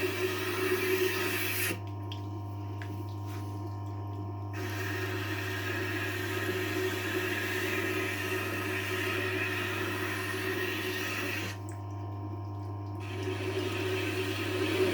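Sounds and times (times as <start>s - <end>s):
sharpener motor humming: 4.6s - 11.6s.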